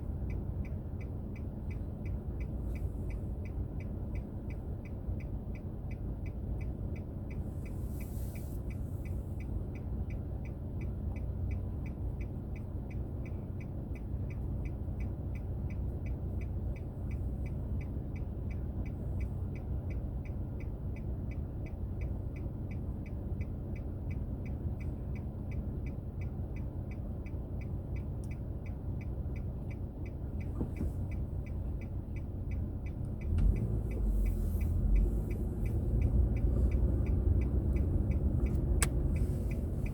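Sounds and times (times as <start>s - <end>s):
car engine and road hum: 0.0s - 39.9s
rapid even ticking: 8.7s - 39.9s.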